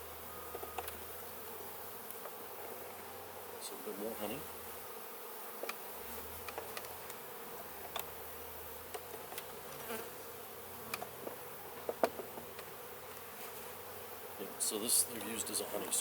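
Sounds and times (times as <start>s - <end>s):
bees buzzing: 0.0s - 16.0s
clicks and knocks of hive frames: 5.6s - 8.1s, 8.9s - 10.0s, 10.8s - 13.6s.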